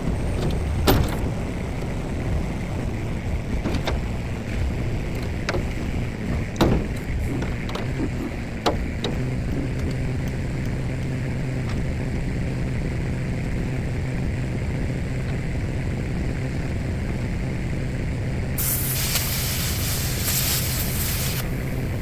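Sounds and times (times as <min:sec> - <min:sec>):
hiss of cutting arc and air: 0:18.6 - 0:22.0
plasma cutter humming: 0:18.6 - 0:22.0.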